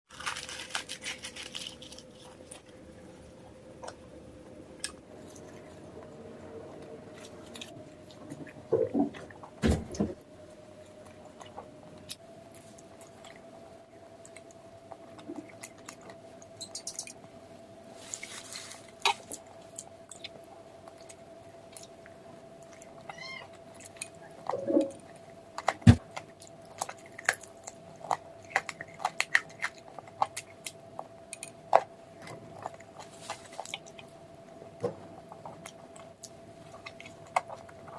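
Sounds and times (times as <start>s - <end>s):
steady faint hum: 0.1s - 37.9s
mouth clicks and chewing: 19.0s - 34.2s.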